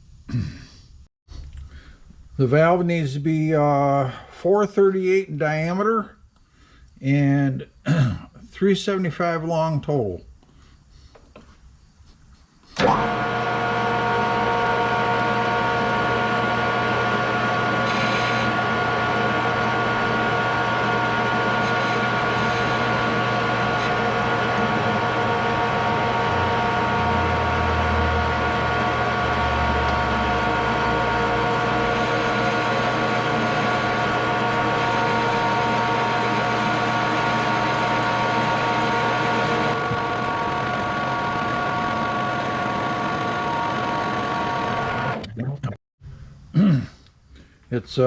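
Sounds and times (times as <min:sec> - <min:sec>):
metal lathe whining: 0:12.8 - 0:45.2.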